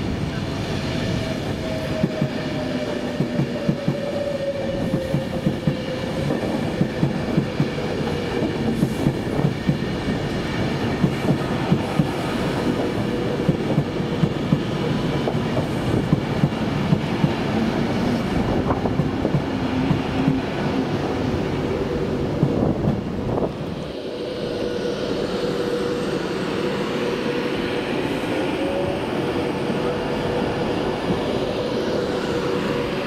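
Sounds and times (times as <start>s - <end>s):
train rumble: 0.0s - 33.0s.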